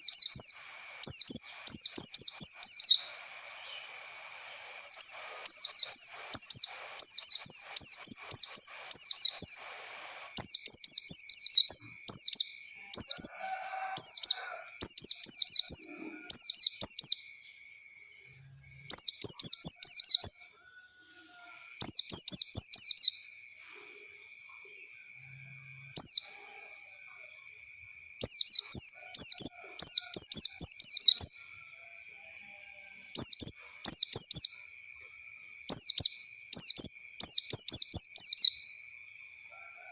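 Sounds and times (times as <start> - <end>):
bird twittering: 0.0 - 13.4.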